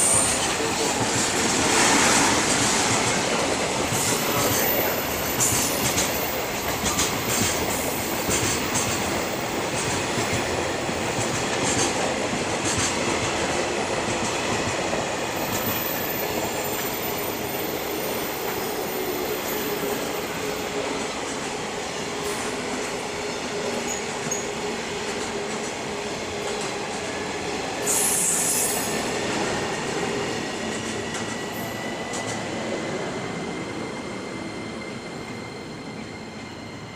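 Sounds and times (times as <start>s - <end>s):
freight train wheels clattering: 0.0s - 18.9s
loud hiss: 27.8s - 29.0s.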